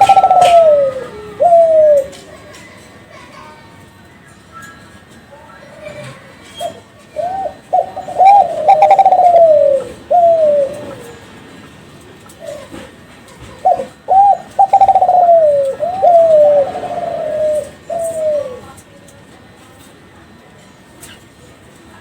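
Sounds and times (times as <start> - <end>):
dove cooing: 0.0 - 2.9, 5.8 - 18.8.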